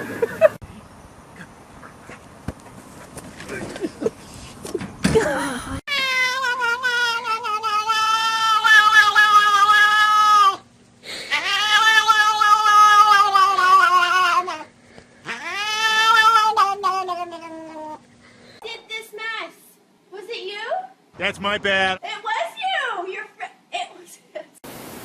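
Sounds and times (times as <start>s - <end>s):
cat yowling: 5.9s - 10.6s, 11.3s - 14.7s, 15.3s - 18.0s.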